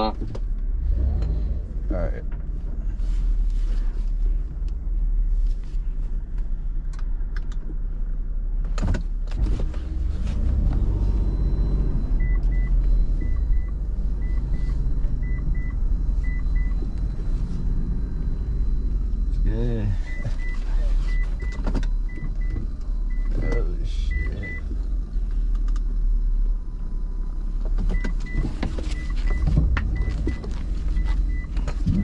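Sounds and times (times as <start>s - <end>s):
car engine and road rumble: 0.0s - 32.0s
car warning chime beeps: 10.7s - 24.7s, 27.9s - 32.0s.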